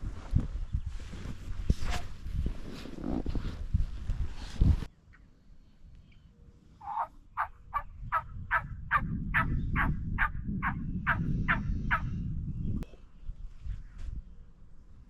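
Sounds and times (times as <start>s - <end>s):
wild turkey yelping: 6.8s - 12.1s.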